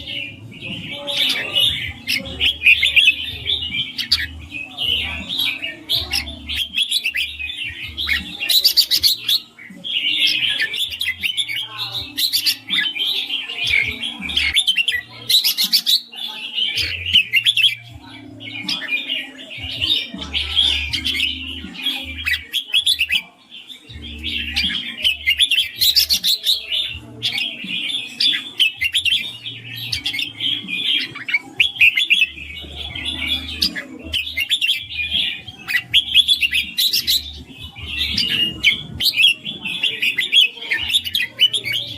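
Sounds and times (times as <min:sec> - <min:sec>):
bird singing bright chattering phrases: 0:00.0 - 0:41.9.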